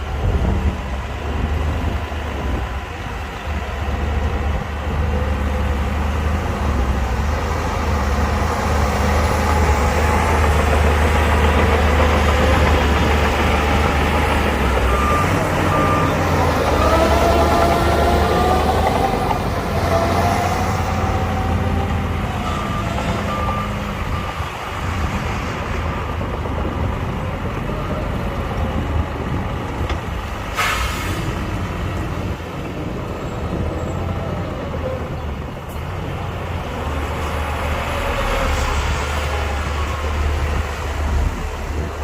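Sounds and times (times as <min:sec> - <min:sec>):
diesel engine drone: 0:00.0 - 0:42.0
reversing beeps: 0:14.7 - 0:17.4, 0:22.4 - 0:24.5
air brake hiss: 0:30.5 - 0:31.4.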